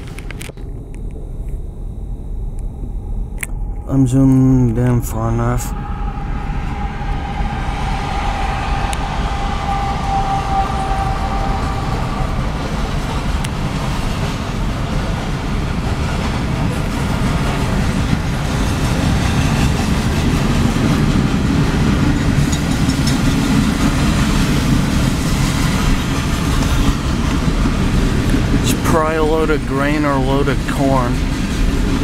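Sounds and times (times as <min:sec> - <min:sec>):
freight train rumbling past: 0:02.1 - 0:32.0
train horn chord: 0:05.8 - 0:13.1.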